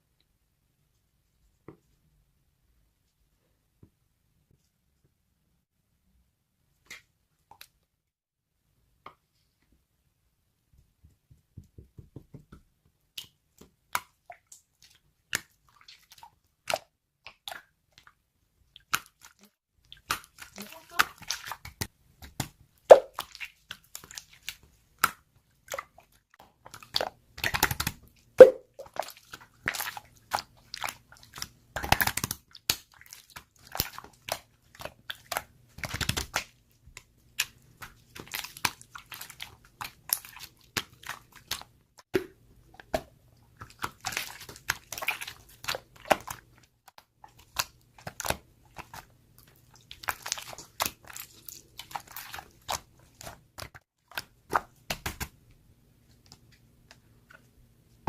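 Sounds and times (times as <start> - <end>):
loud slime pops: 22.9 - 23.2
slime squeezed by hand: 22.9 - 23.5, 28.4 - 29.9.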